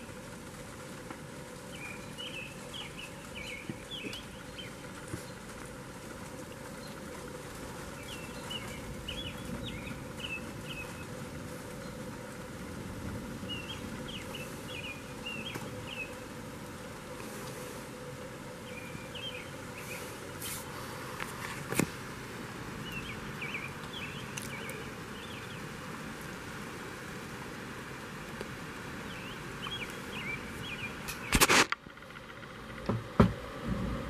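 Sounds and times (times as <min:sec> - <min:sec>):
rain hissing: 0:00.0 - 0:34.0
bird chirping: 0:01.6 - 0:05.6, 0:06.5 - 0:12.3, 0:13.4 - 0:17.0, 0:18.1 - 0:20.6, 0:22.7 - 0:25.9, 0:29.0 - 0:31.4
sharp click: 0:31.1 - 0:31.8.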